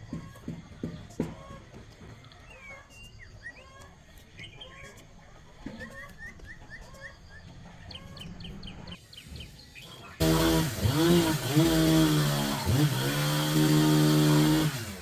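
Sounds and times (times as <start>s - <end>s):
chicks peeping: 0.1s - 10.2s.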